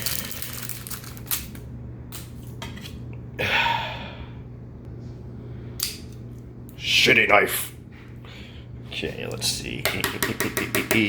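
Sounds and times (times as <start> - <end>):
man gasping: 3.4 - 4.4.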